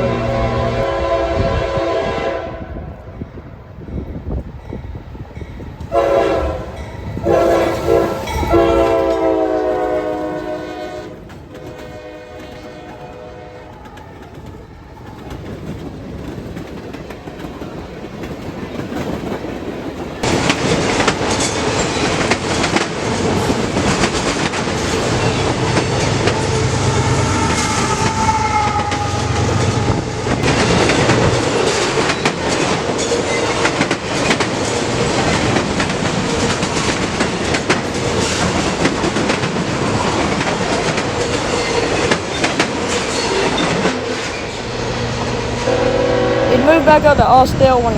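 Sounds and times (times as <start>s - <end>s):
locomotive engine drone: 0.0s - 1.2s
train rumble: 0.0s - 47.9s
wheel clatter over rail joints: 13.8s - 26.4s, 29.7s - 45.6s.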